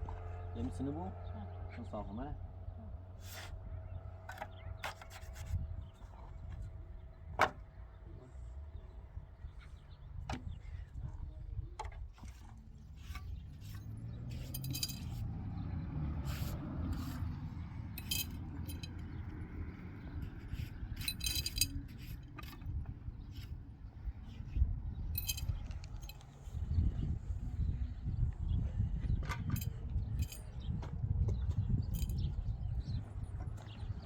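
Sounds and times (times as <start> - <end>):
metal jingling and clinking: 13.6 - 15.3, 18.0 - 19.1, 21.0 - 22.7, 25.1 - 26.4, 29.5 - 30.7, 31.9 - 32.3
steady low rumble: 16.4 - 34.0.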